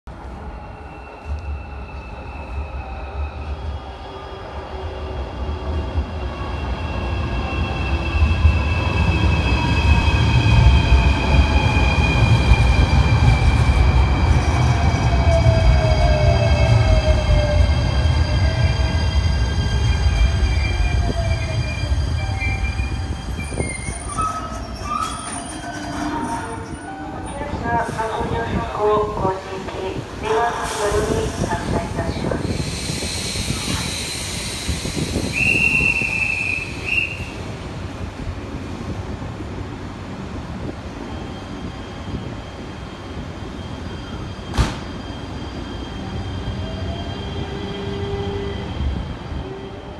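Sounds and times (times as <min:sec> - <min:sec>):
train wheels rumbling on rail: 0:04.4 - 0:49.9.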